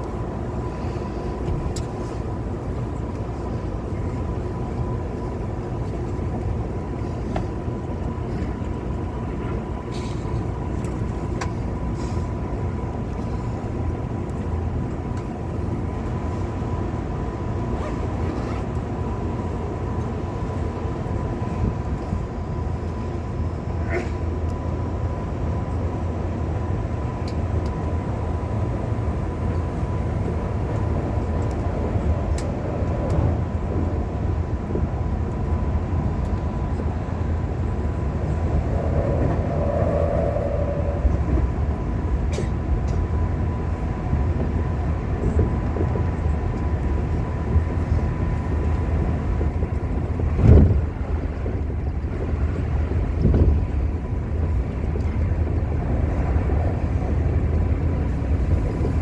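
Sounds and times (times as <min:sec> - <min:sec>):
electric train rumble: 0:00.0 - 0:59.0
faint steady whine: 0:19.9 - 0:44.4.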